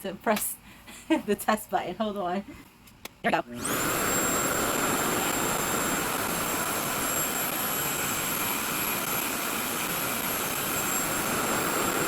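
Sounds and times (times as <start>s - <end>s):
hair dryer running: 3.5s - 12.0s.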